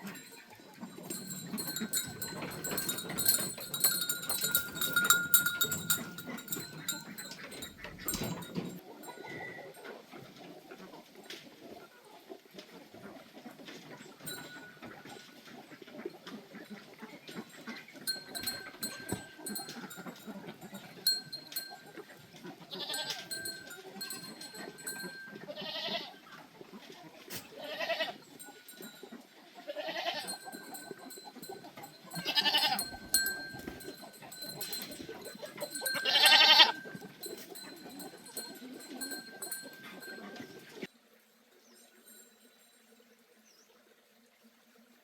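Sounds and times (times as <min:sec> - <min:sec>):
farm animals bleating: 0:00.0 - 0:08.8, 0:18.0 - 0:26.3, 0:27.3 - 0:40.8
farmyard background: 0:00.0 - 0:45.0.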